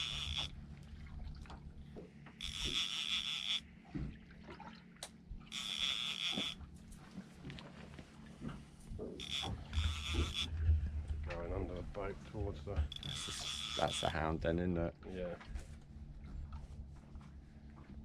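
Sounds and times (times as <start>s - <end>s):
fishing reel buzzing: 0.0s - 0.6s, 2.2s - 3.7s, 5.5s - 6.7s, 9.2s - 10.6s, 12.9s - 14.2s
low steady hum: 0.0s - 18.0s.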